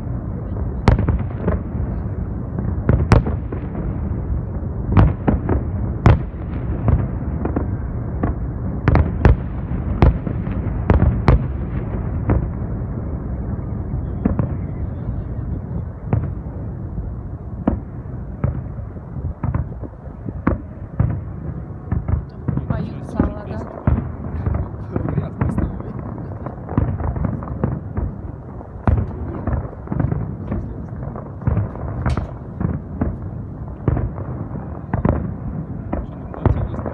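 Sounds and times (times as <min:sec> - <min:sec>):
low rumble of explosions: 0:00.0 - 0:36.9
firework shell bursts: 0:31.5 - 0:33.2.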